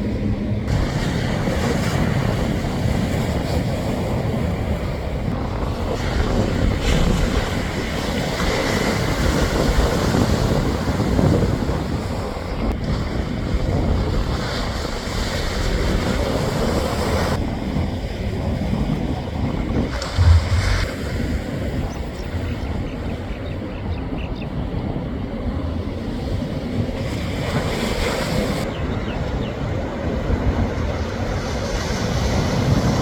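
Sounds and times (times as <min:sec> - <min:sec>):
ocean surf: 0:00.0 - 0:11.0, 0:19.9 - 0:21.9
wind buffeting microphone: 0:00.0 - 0:33.0.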